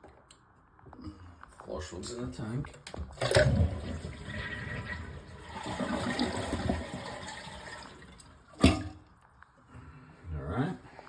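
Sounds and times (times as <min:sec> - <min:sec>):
toilet tank draining: 0:03.0 - 0:09.0.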